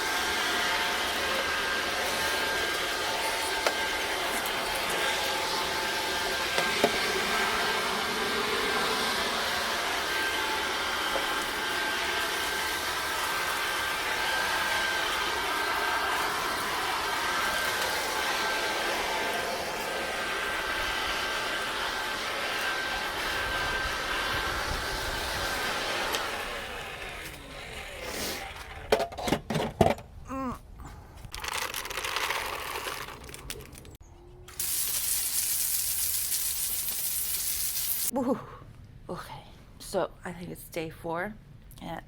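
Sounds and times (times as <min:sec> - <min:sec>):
leaf blower running: 0:00.0 - 0:29.0.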